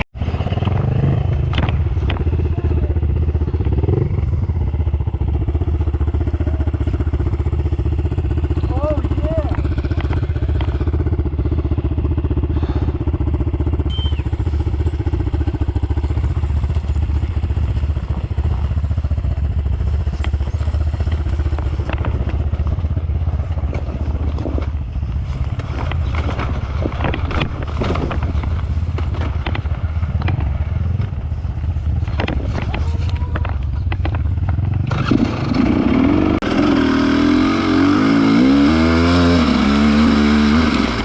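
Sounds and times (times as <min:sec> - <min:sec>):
motorcycle engine droning: 0:00.0 - 0:41.0
sharp knocks and clicks: 0:21.0 - 0:22.6, 0:25.6 - 0:31.2, 0:32.0 - 0:34.9.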